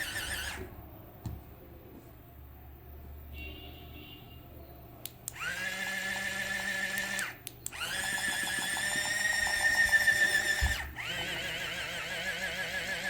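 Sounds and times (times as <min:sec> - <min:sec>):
electric toy whining: 0:00.0 - 0:00.6, 0:05.4 - 0:13.0.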